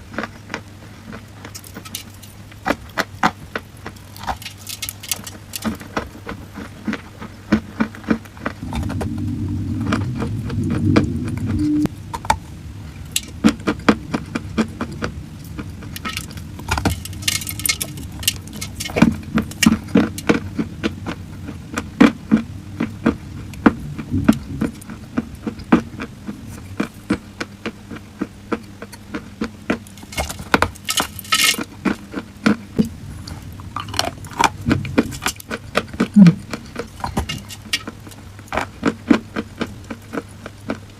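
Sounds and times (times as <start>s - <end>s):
chalk cracking and crumbling: 1.4s - 7.0s, 15.0s - 20.4s.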